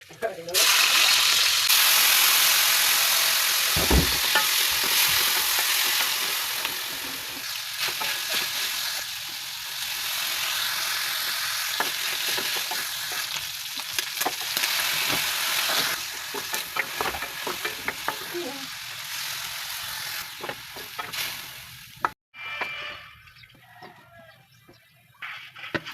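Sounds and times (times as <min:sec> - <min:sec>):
food sizzling in a pan: 0:00.0 - 0:22.2
utensil scraping a pan: 0:03.8 - 0:08.8.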